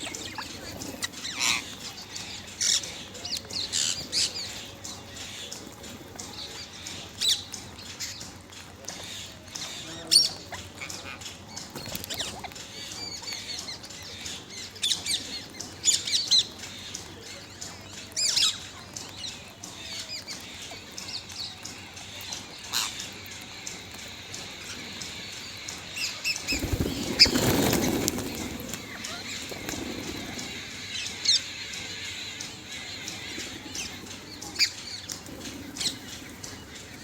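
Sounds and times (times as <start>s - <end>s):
parrot squawking: 0.0s - 2.8s
wing flapping: 0.0s - 18.7s, 22.3s - 37.0s.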